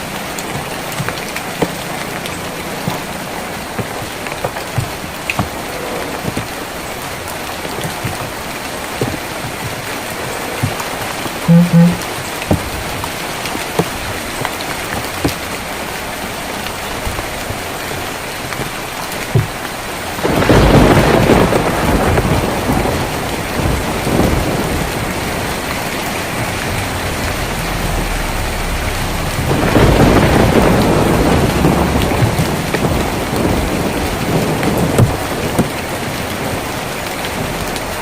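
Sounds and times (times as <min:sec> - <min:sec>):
rain on a tin roof: 0:00.0 - 0:38.0
thunder rumbling: 0:16.1 - 0:38.0.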